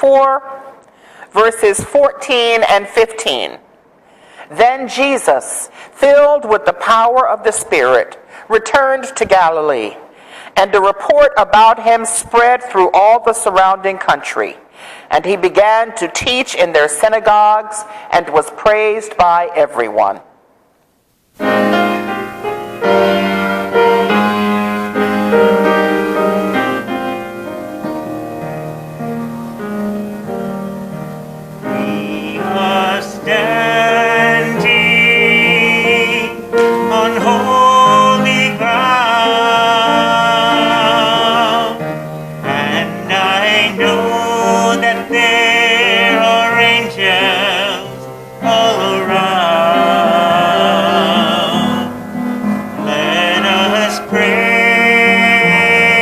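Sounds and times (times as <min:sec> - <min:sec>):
person singing with vibrato: 0:21.4 - 0:28.0, 0:31.2 - 0:56.0
piano playing: 0:21.4 - 0:56.0.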